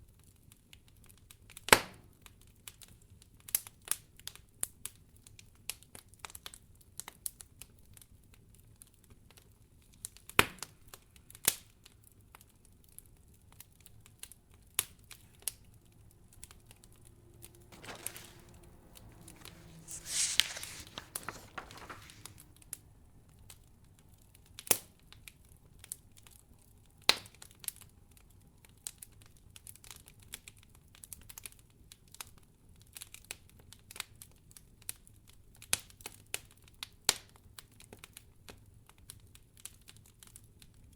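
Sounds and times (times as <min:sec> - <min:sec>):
soft rush of noise: 0:17.8 - 0:22.4.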